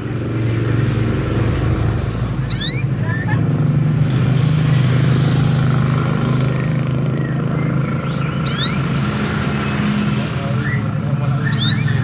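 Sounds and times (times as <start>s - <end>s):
motor engine running: 0.1s - 12.0s
bird chirping: 2.4s - 3.3s, 6.4s - 12.0s.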